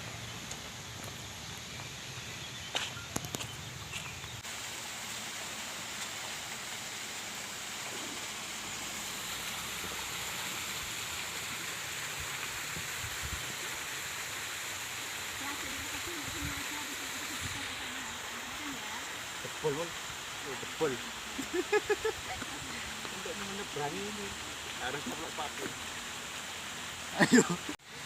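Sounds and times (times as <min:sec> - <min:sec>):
stream water flowing: 0:00.0 - 0:28.0.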